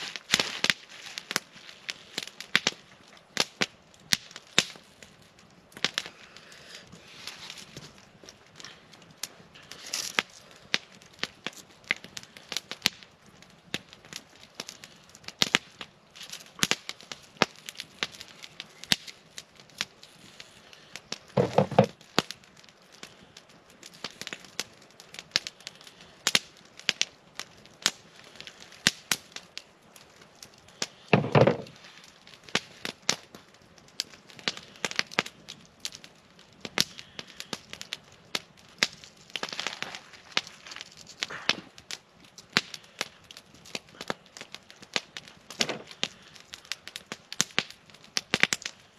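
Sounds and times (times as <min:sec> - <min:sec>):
campfire crackling and popping: 0:00.0 - 0:48.9
loud deep fire snaps: 0:00.0 - 0:48.9.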